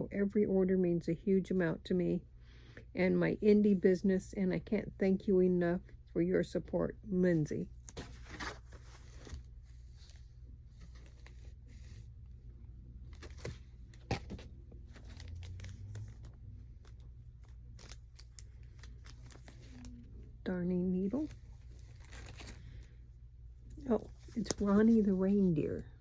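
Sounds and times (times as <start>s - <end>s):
low steady hum: 0.0s - 26.0s
paper packaging rustling: 7.8s - 12.1s, 13.0s - 20.2s, 21.1s - 22.9s.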